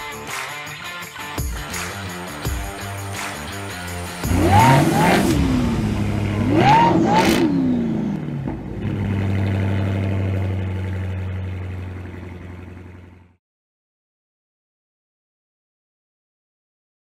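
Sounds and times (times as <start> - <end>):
car engine revving and idling: 2.9 - 13.4.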